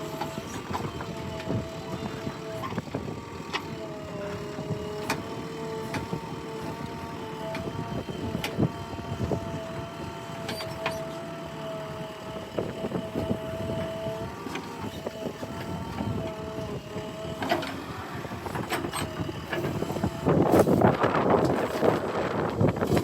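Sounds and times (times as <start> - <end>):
backhoe engine whining: 0.0 - 23.0.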